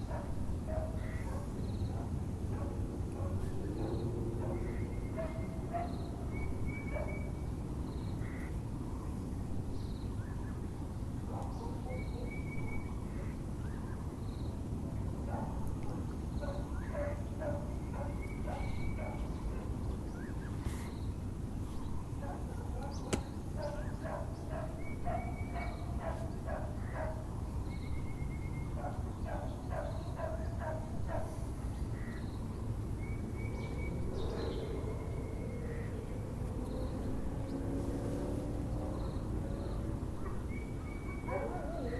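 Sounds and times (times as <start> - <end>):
dog barking: 0.1 - 6.0, 11.3 - 12.3, 15.3 - 19.2, 22.2 - 27.2, 28.8 - 31.4, 41.2 - 41.9
birds trilling: 16.4 - 21.1, 21.8 - 32.5, 33.1 - 37.6, 39.0 - 41.9
sharp click: 23.1 - 23.3.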